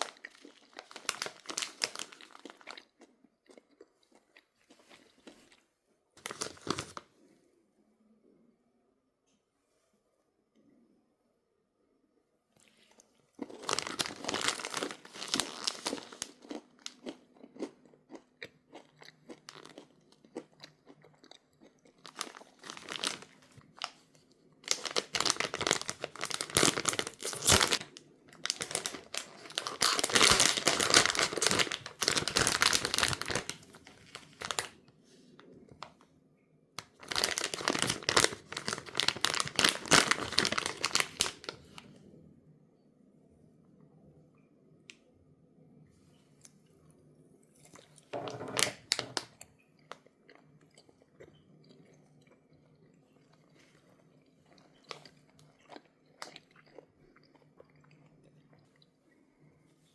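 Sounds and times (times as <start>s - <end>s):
plastic packaging crinkling: 0.0s - 2.9s, 6.2s - 7.1s, 13.4s - 17.0s, 19.5s - 19.8s, 22.0s - 24.0s, 24.6s - 34.8s, 36.8s - 41.8s, 48.2s - 49.3s
crunchy snacks being chewed: 0.0s - 7.0s, 12.6s - 34.8s, 36.8s - 41.9s, 47.5s - 59.0s.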